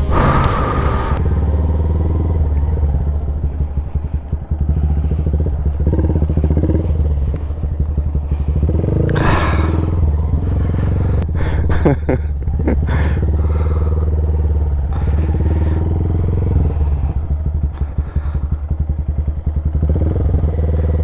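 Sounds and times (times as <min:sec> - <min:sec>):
short rush of noise: 0:00.0 - 0:02.8
motorcycle engine at low revs: 0:00.0 - 0:21.0.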